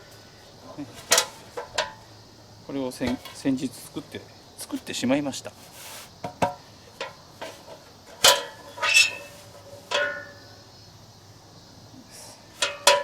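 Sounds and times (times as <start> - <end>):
metal pot clanking: 1.0 - 2.0, 3.0 - 3.5, 6.3 - 10.6, 12.6 - 13.0.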